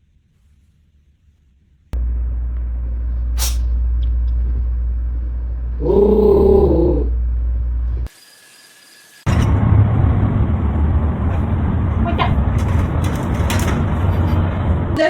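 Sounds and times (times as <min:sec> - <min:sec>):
low rumble: 0:02.0 - 0:08.1.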